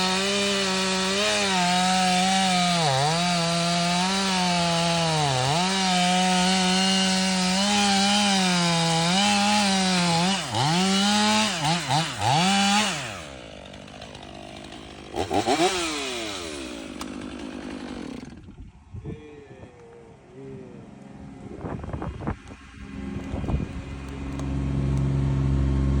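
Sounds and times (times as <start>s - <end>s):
chainsaw cutting wood: 0.0s - 18.8s.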